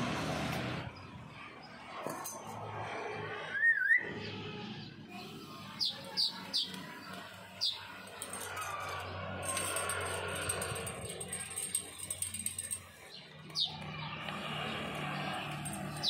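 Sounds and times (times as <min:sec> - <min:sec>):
bird wavering whistle: 0:03.5 - 0:04.1
bird downward-sliding chirps: 0:03.5 - 0:04.2.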